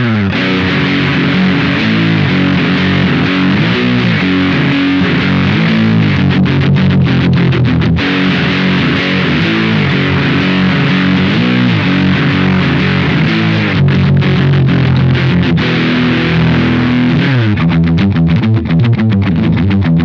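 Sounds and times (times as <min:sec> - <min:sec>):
distorted electric guitar chords: 0:00.0 - 0:20.0.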